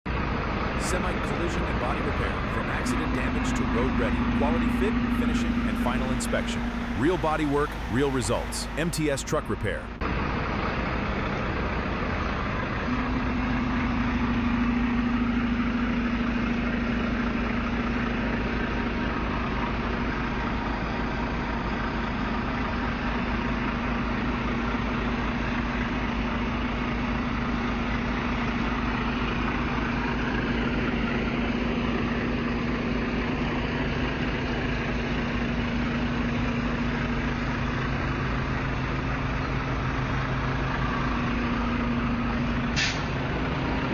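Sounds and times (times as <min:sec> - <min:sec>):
truck diesel engine idling: 0:00.1 - 0:43.9
steady hum: 0:00.8 - 0:10.0.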